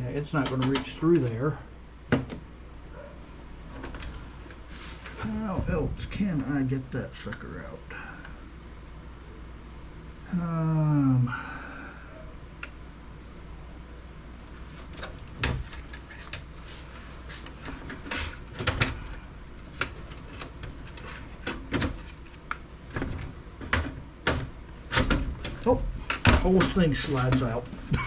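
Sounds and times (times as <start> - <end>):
computer case parts clicking: 0.4 - 1.3, 14.8 - 16.6.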